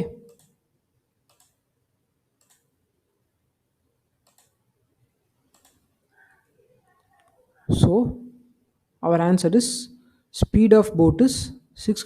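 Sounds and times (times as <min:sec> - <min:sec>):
faint sharp clicks: 0:01.3 - 0:01.6, 0:02.4 - 0:02.6, 0:04.2 - 0:04.6, 0:05.5 - 0:05.8.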